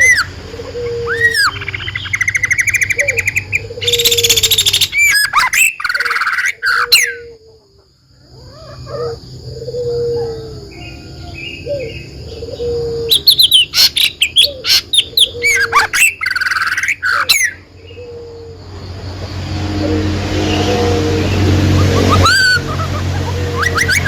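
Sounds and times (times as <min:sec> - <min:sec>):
songbird chirping and warbling: 0:00.0 - 0:24.0
low rumbling noise: 0:17.6 - 0:24.0.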